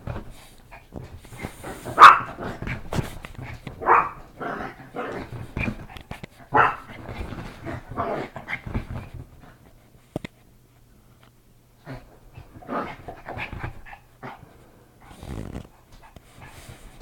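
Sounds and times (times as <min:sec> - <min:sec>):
dog barking: 0:02.0 - 0:02.5, 0:03.8 - 0:04.2, 0:06.5 - 0:06.9
rustling: 0:15.0 - 0:17.0.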